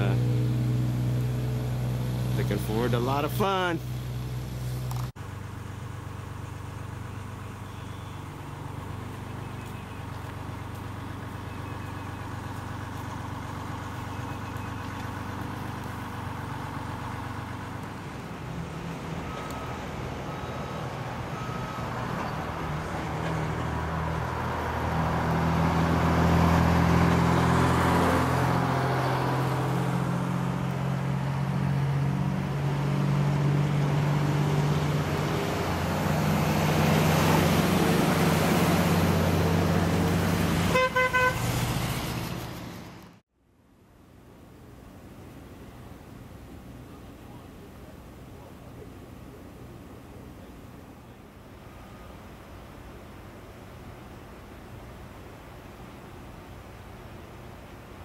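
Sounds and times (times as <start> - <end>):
vehicle engine running: 0.0 - 43.2
road noise: 0.0 - 58.0.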